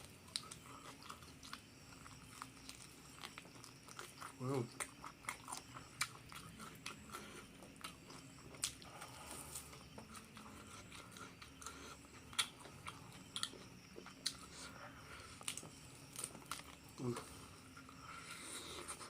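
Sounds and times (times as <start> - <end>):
person chewing crispy food: 0.0 - 19.0.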